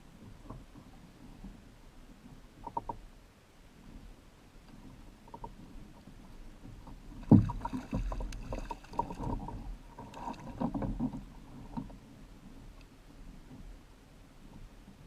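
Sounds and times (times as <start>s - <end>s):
bumps and clatter on kayak: 5.2s - 12.1s
loud thump on kayak: 7.2s - 8.2s.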